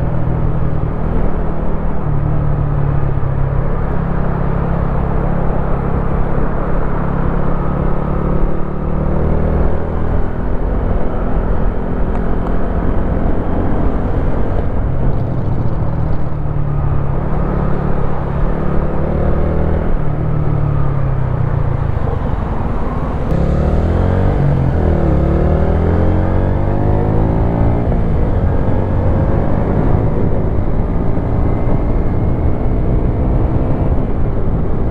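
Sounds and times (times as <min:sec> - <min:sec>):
motorcycle engine revving: 0:17.2 - 0:34.2.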